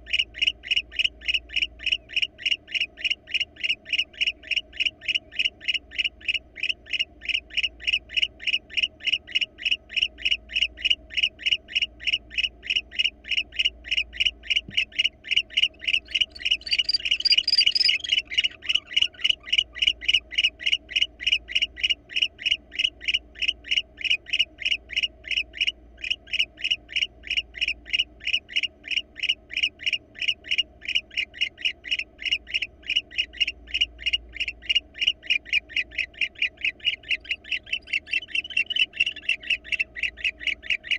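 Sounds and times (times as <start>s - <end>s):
faint steady hum: 0.0s - 40.9s
animal chirping call: 11.2s - 40.9s
louder noisy animal call: 14.4s - 26.4s.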